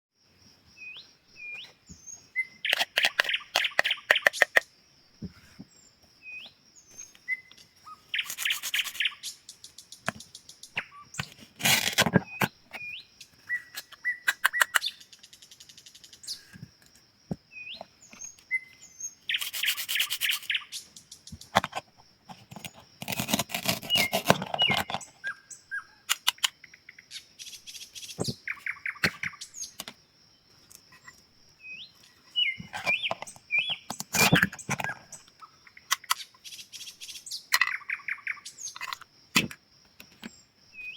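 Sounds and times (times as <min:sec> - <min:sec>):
birds chirping: 0:00.7 - 0:21.8, 0:22.5 - 0:39.0
toys being cut crackling: 0:02.7 - 0:04.6, 0:11.6 - 0:12.2, 0:23.0 - 0:25.0.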